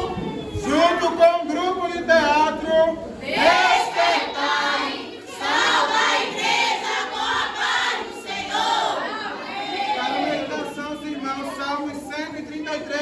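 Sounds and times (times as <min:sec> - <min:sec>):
choir singing: 0:03.2 - 0:10.7.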